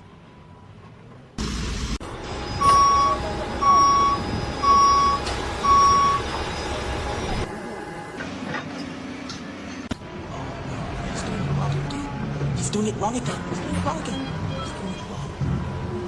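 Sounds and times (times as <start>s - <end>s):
reversing alarm beeping: 2.3s - 7.5s.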